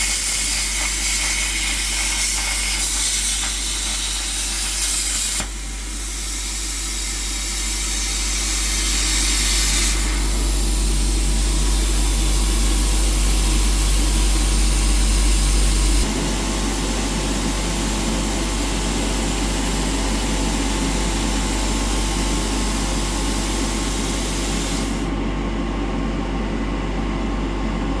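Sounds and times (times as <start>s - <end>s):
plasma cutter hissing: 0.0s - 25.2s
constant electrical hum: 0.0s - 28.0s.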